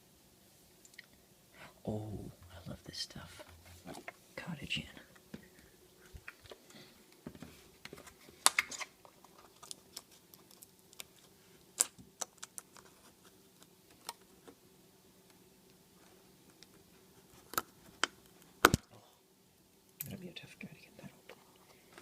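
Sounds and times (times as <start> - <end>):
faint steady hum: 0.0 - 22.0
food packaging clicking and rustling: 6.2 - 14.6.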